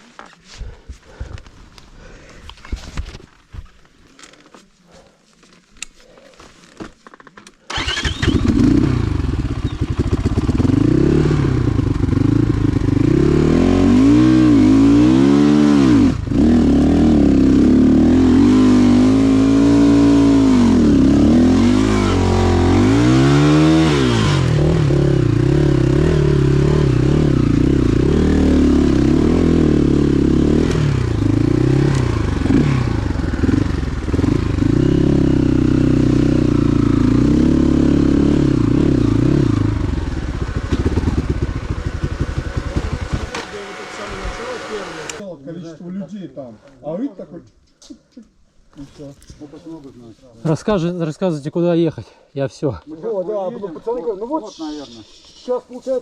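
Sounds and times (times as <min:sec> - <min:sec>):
motorcycle engine starting and revving: 0:07.7 - 0:45.2.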